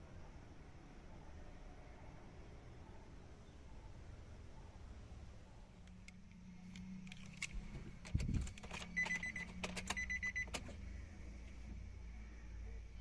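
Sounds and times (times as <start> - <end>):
clicks and thump in car: 7.7 - 10.8
dashboard warning chime beeping: 8.8 - 10.6.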